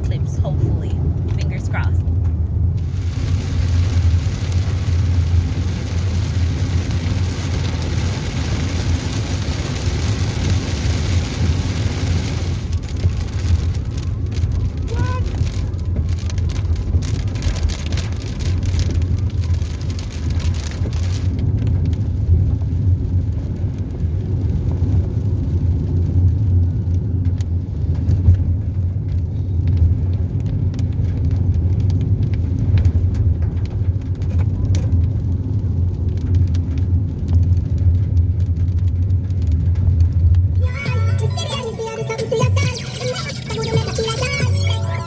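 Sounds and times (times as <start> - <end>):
car road and engine drone: 0.0 - 45.0
raindrop ticks: 1.2 - 44.8
rain hiss: 2.8 - 21.3.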